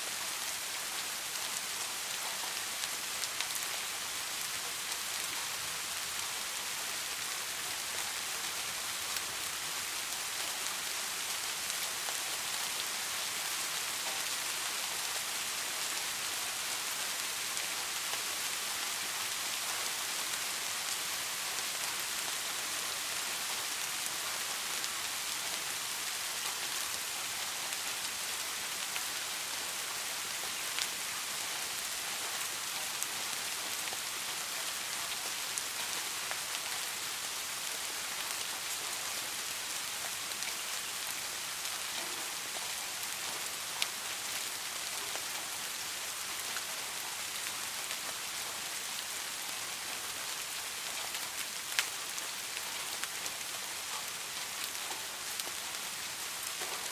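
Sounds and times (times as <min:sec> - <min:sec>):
steady rain falling: 0:00.0 - 0:56.9
sharp raindrop ticks: 0:51.4 - 0:55.6.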